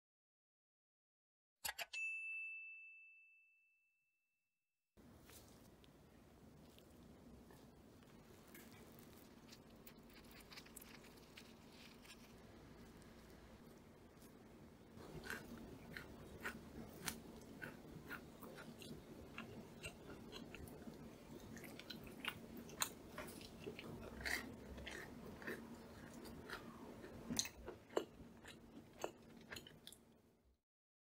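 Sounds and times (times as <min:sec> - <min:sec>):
faint steady hum: 0:05.0 - 0:30.5
cookie crunching: 0:06.5 - 0:30.1.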